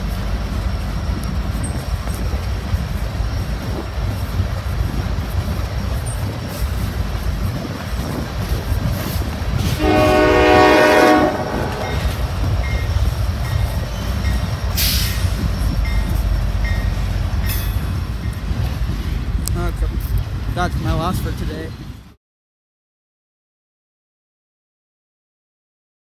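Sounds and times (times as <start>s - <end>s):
freight train rumbling on rails: 0.0s - 22.2s
locomotive horn chord: 9.7s - 12.1s.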